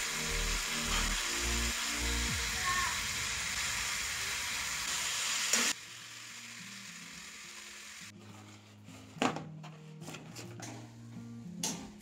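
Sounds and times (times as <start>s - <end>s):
vegetables sizzling: 0.0s - 8.1s
faint background music: 7.8s - 12.0s.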